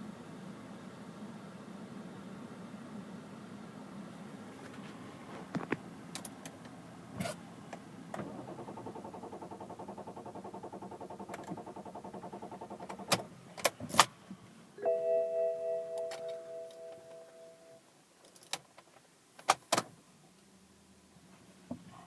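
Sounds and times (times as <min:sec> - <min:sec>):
multi-tone warning chime: 0:14.8 - 0:17.8.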